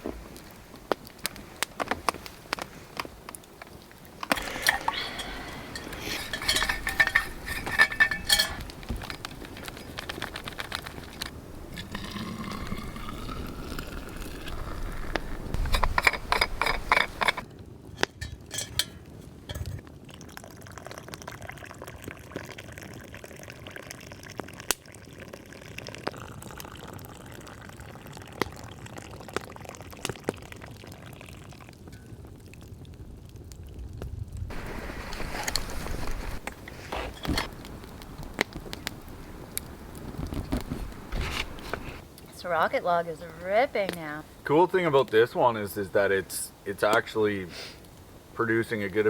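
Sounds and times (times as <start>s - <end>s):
fire hissing and crackling: 0.0s - 19.8s, 28.0s - 49.0s
clinks: 4.2s - 12.1s, 15.5s - 17.4s, 18.0s - 19.8s
liquid pouring into a cup: 10.3s - 15.4s, 20.1s - 31.7s.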